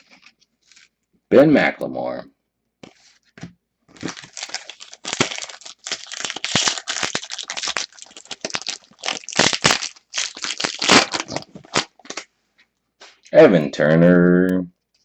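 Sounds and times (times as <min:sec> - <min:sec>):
foil wrapper crinkling: 0:00.0 - 0:01.0, 0:03.9 - 0:12.3.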